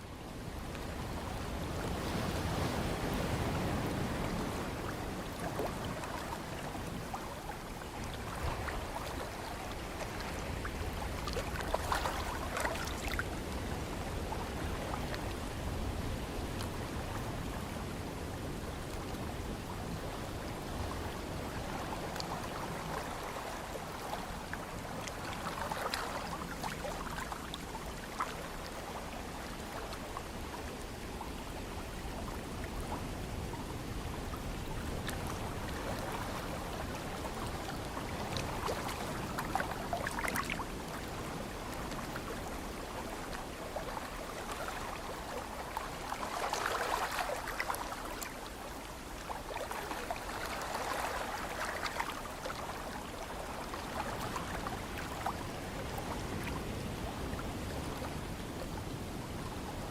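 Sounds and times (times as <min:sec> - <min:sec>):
low rumble of breeze: 0:00.0 - 0:59.9.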